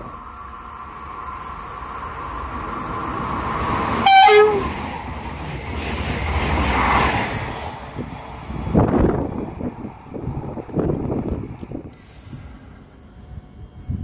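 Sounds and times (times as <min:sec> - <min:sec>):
train rumbling past: 0:00.0 - 0:14.0
two-note train horn: 0:04.0 - 0:04.7.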